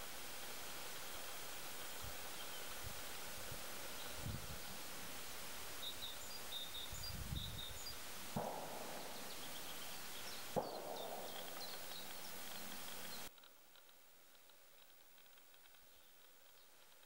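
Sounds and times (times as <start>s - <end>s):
steady hiss: 0.0s - 17.0s
small bird chirping: 5.8s - 13.5s, 14.3s - 17.0s
sharp clicks: 10.5s - 17.0s.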